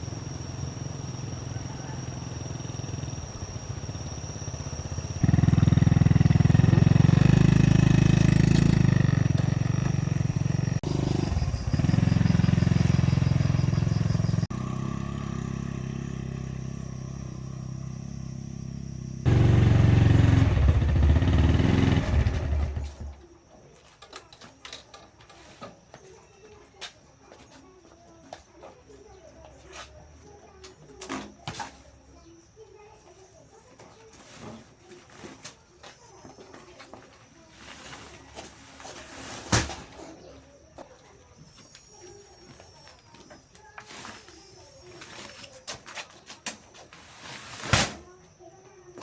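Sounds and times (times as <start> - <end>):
small engine running: 0.0 - 23.2.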